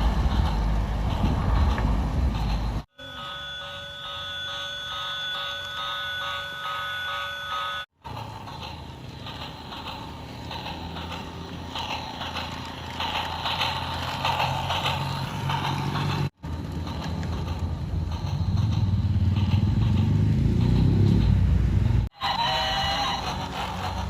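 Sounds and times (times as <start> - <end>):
model train motor hum: 0.0 - 24.0
wheel clicks: 8.0 - 22.1.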